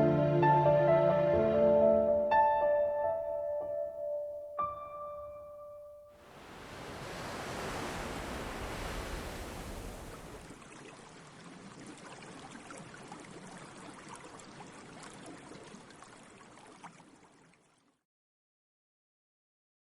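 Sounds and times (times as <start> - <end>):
sea waves breaking: 6.2 - 16.8
water fizzing as wave draws back: 6.3 - 17.9.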